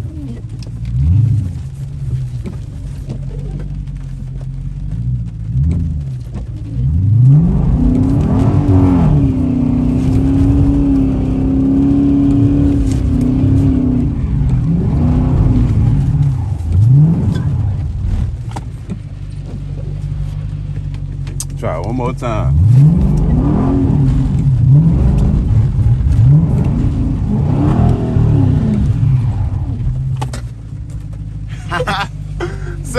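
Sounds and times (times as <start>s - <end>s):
car engine revving hard: 5.5s - 18.6s, 21.4s - 30.3s.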